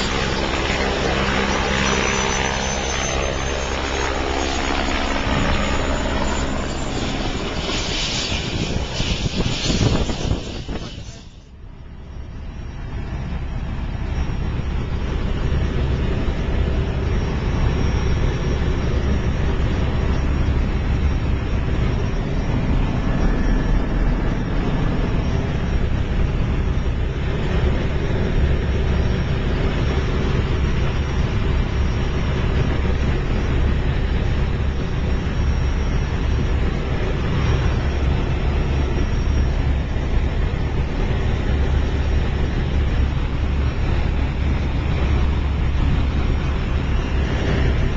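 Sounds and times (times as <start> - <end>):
wind on microphone: 0.0 - 11.6
ride engine noise: 0.0 - 47.9.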